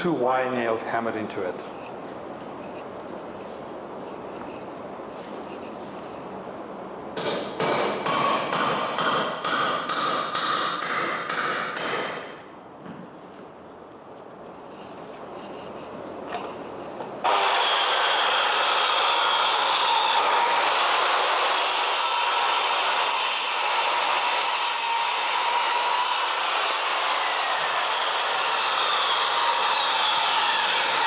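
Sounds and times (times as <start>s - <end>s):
circular saw cutting timber: 17.2s - 31.0s.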